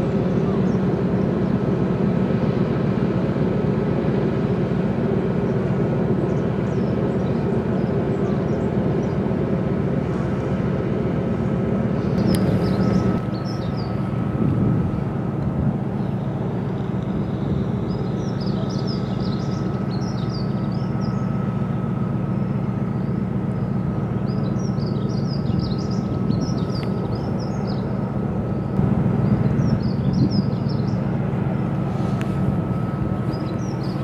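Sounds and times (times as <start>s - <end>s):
low engine drone: 0.0s - 34.0s
thin constant whine: 0.0s - 34.0s
birds chirping: 11.9s - 14.2s, 15.9s - 34.0s.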